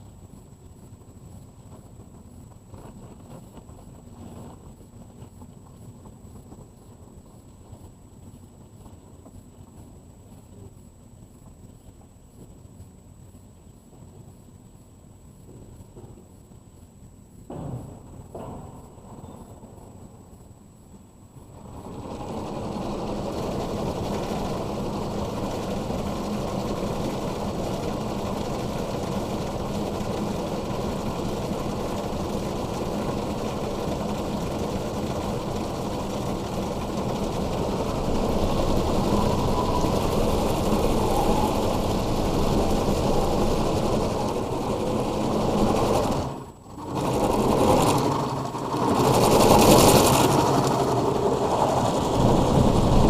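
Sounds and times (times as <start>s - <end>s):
car wash machinery whirring: 21.5s - 53.0s.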